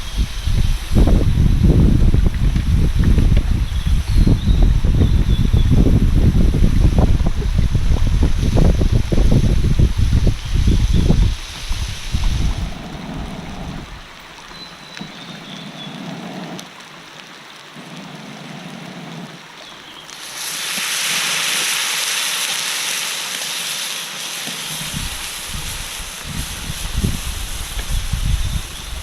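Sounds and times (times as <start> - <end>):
wind buffeting microphone: 0.0 - 14.3, 24.8 - 29.0
loud rushing hiss: 5.9 - 14.0, 20.2 - 29.0.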